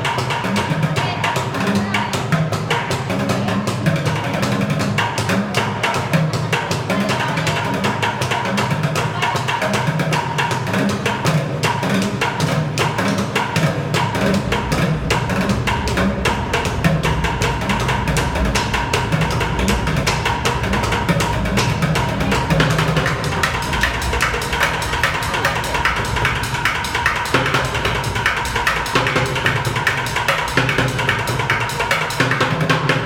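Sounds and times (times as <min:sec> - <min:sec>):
sticks drumming on plastic buckets: 0:00.0 - 0:33.0
hollow low thuds: 0:13.6 - 0:29.8
deep low rumble: 0:14.1 - 0:29.2.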